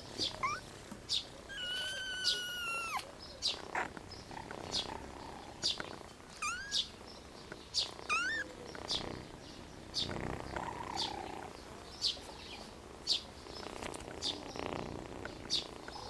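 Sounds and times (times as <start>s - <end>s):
kitten meowing: 0.2s - 0.6s, 1.5s - 3.1s, 6.4s - 6.9s, 8.1s - 8.5s.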